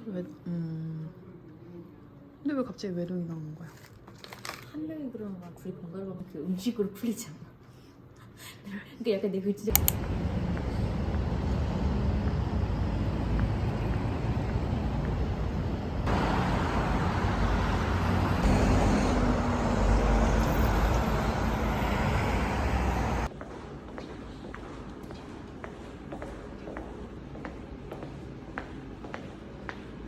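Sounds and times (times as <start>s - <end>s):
traffic rumble: 9.7s - 23.3s.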